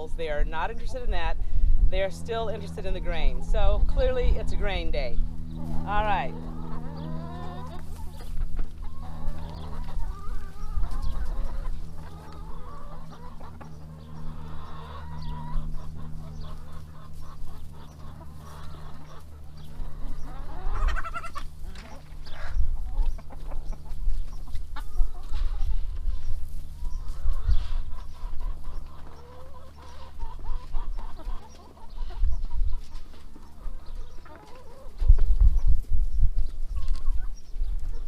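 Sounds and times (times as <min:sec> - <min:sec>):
steady low hum: 0:00.0 - 0:38.0
hens clucking and calling: 0:01.9 - 0:35.6, 0:36.4 - 0:38.0.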